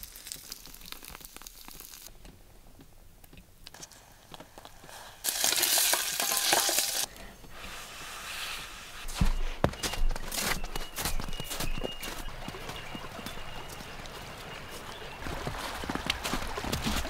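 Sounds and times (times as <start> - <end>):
food sizzling in a pan: 5.2 - 7.1.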